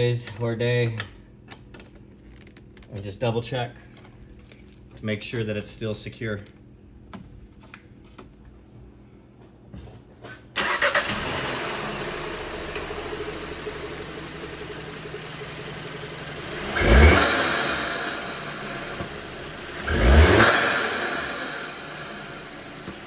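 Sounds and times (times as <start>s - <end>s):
car engine idling: 10.6s - 23.0s
car engine revving: 10.6s - 23.0s.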